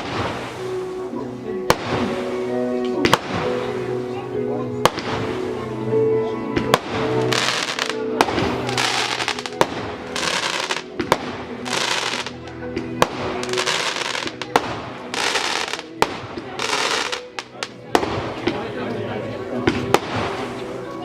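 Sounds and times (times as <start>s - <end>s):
fireworks bangs: 0.0s - 0.7s, 1.7s - 2.2s, 3.0s - 3.6s, 4.8s - 5.4s, 6.6s - 12.4s, 13.0s - 18.6s, 19.7s - 20.6s
fireworks crackling: 0.0s - 1.0s, 1.6s - 2.4s, 3.0s - 3.7s, 4.8s - 5.5s, 6.6s - 18.6s, 19.8s - 20.8s
music: 0.0s - 21.0s.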